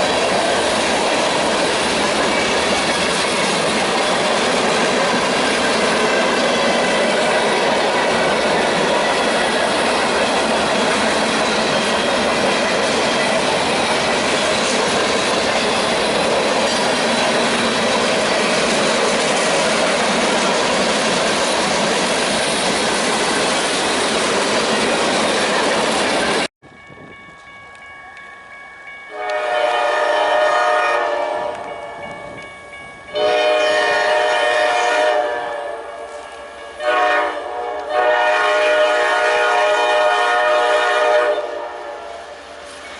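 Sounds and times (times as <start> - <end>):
freight train wheels clacking: 0.0 - 42.9
locomotive air horn blasts: 29.1 - 31.7, 33.2 - 42.3.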